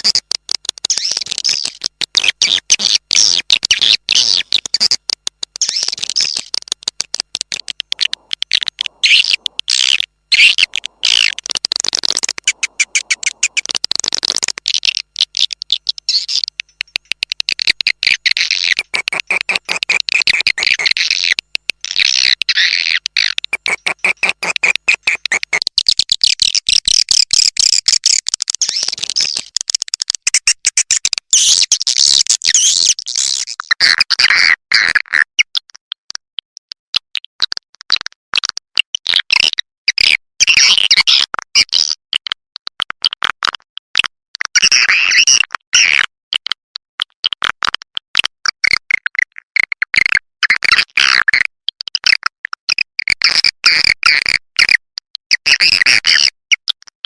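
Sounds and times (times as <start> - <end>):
swiftlets chattering chirps and clicks: 0.1 - 33.6.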